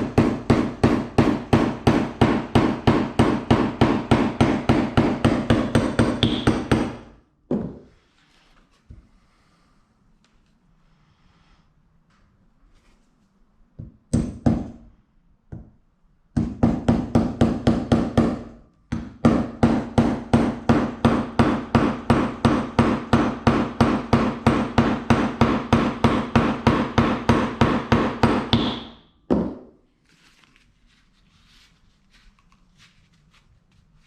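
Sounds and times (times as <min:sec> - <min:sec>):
hammer striking metal: 0:00.0 - 0:07.0.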